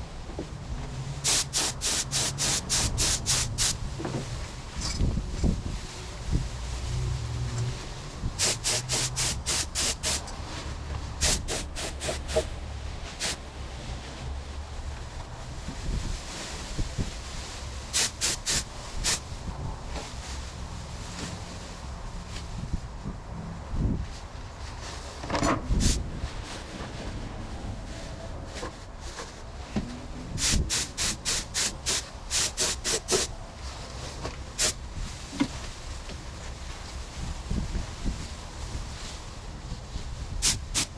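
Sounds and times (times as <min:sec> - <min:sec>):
paint spray gun hissing bursts: 0:01.2 - 0:03.8, 0:08.4 - 0:10.3, 0:11.2 - 0:12.5, 0:13.2 - 0:13.4, 0:17.9 - 0:19.2, 0:30.4 - 0:33.3, 0:40.4 - 0:40.9.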